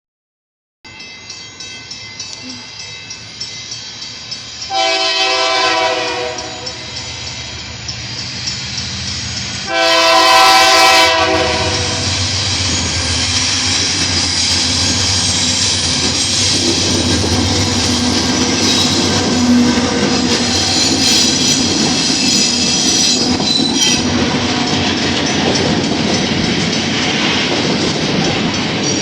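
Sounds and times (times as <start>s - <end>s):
train air horn blasts: 4.7s - 7.0s, 9.6s - 12.2s
locomotive engine rumble: 6.9s - 28.8s.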